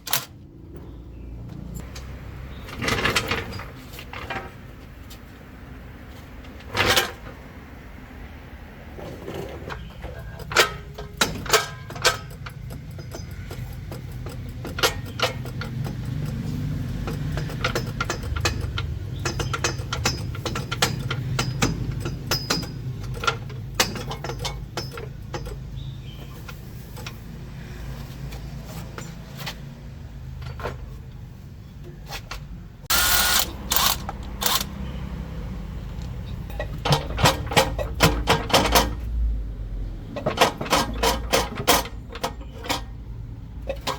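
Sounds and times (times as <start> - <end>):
metal clinks and knocks: 9.8 - 16.4, 17.0 - 25.7
harsh power tool burst: 32.9 - 34.7.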